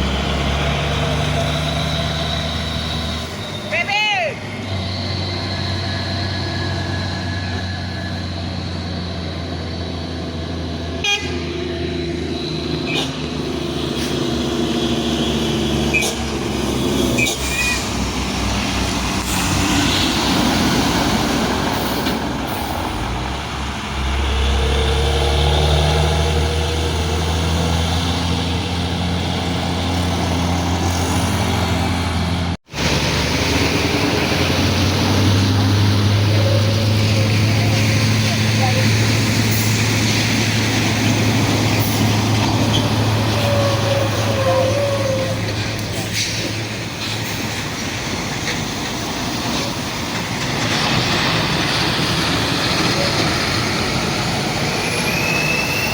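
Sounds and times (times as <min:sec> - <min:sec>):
truck diesel engines: 0:00.0 - 0:55.9
vehicle horns tooting: 0:11.0 - 0:11.6, 0:17.2 - 0:18.0.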